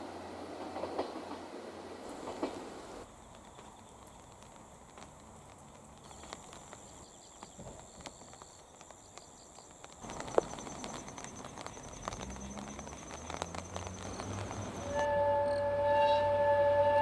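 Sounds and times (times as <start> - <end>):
insects trilling: 2.1 - 15.1.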